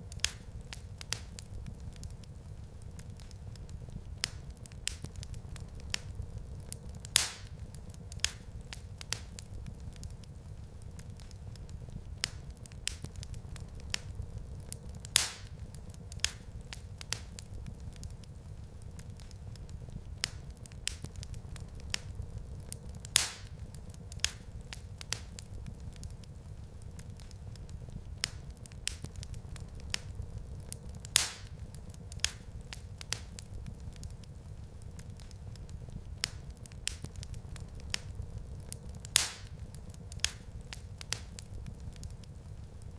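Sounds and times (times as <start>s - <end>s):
fireplace fire crackling: 0.0s - 42.9s
low fire rumble: 0.0s - 42.9s
sharp wood pops: 39.2s - 39.5s.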